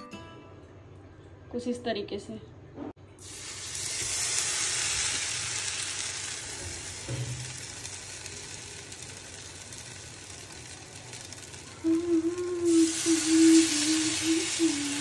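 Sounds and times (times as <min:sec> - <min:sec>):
bread sizzling in hot oil: 0:03.2 - 0:15.0.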